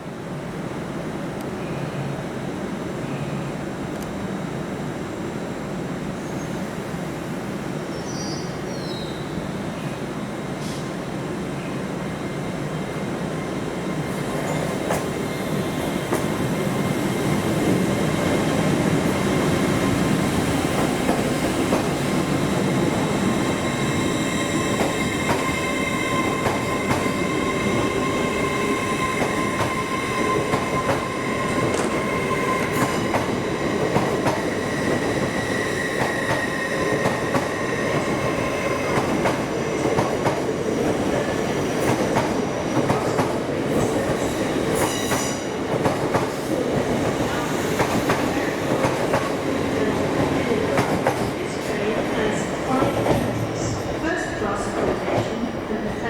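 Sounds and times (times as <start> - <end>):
train wheels rumbling: 12.1 - 56.0.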